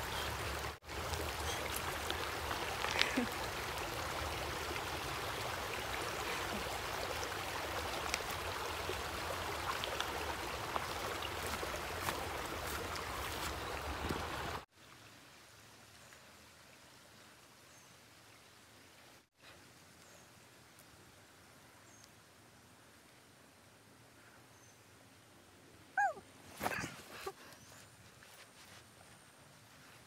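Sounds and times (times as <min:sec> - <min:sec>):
stream water running over rocks: 0:00.0 - 0:21.1
faint outdoor background: 0:00.0 - 0:30.0.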